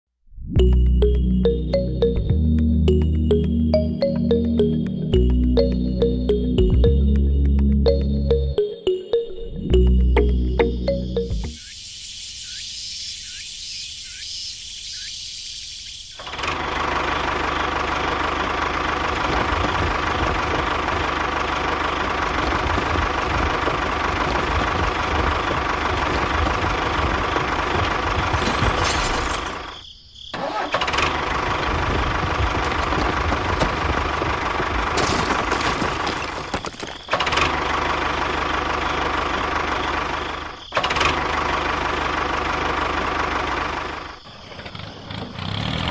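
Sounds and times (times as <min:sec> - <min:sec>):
small engine running: 0:16.2 - 0:28.7, 0:30.4 - 0:45.9.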